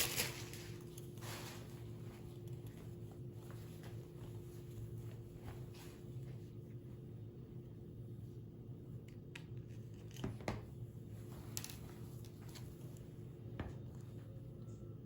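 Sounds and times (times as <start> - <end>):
handling clicks and rustles: 0.0 - 4.0, 11.2 - 13.1
steady low hum: 0.0 - 15.0.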